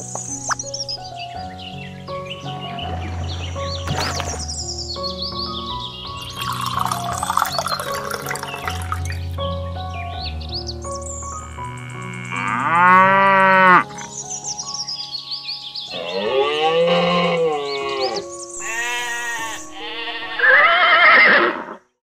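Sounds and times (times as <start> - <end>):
background music: 0.0 - 21.7
cow mooing: 11.5 - 14.0, 15.9 - 21.7.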